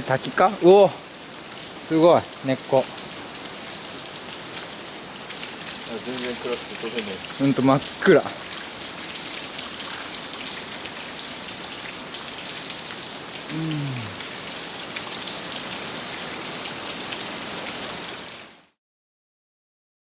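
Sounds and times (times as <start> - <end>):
water drops pattering on leaves: 4.5 - 12.8.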